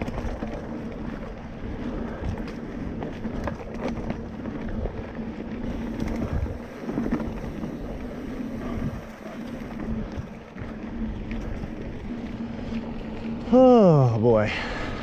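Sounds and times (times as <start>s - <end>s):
bike clicks and rattles: 0.0s - 15.0s
bike tyre rumble: 0.0s - 15.0s
wind buffeting microphone: 0.0s - 15.0s.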